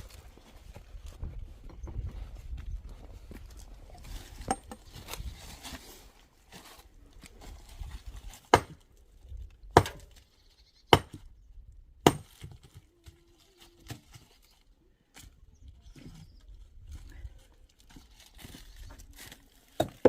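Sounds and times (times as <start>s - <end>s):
hand tool striking hard material: 8.5s - 8.8s, 9.8s - 10.1s, 12.0s - 12.7s.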